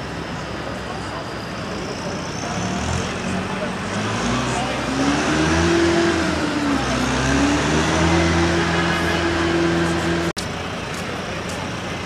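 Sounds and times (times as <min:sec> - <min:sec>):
street traffic: 0:00.0 - 0:12.0
vehicle engine running: 0:00.0 - 0:12.0.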